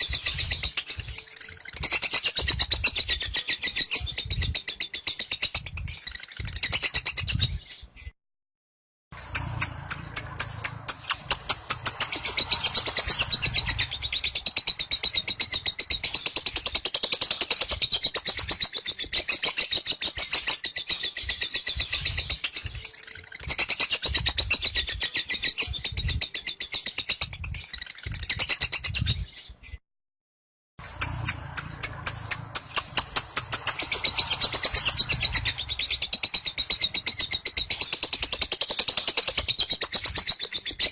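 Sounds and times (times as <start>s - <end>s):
lovebird chattering trill: 9.2s - 29.1s, 30.8s - 40.9s.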